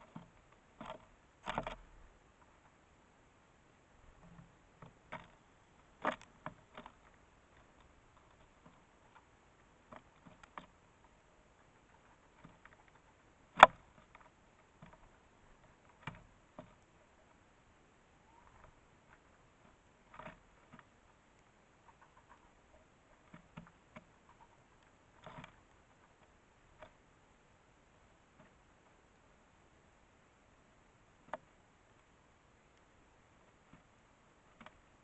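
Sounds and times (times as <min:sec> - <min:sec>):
sparrow pecking taps and clicks: 0:18.3 - 0:27.0.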